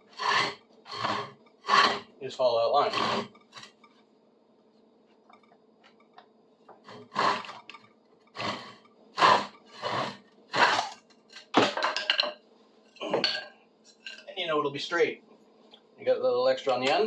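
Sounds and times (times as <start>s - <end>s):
hand saw rasping through wood: 0.0s - 2.1s, 2.8s - 3.8s, 6.8s - 7.6s, 8.3s - 10.9s.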